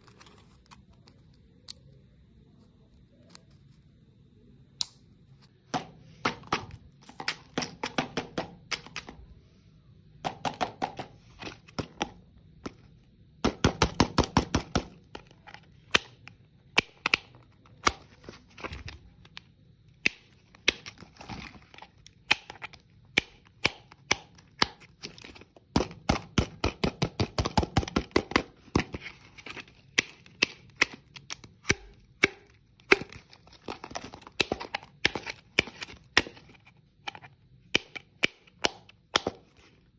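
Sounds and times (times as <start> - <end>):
hard candy crunching: 14.8 - 39.6.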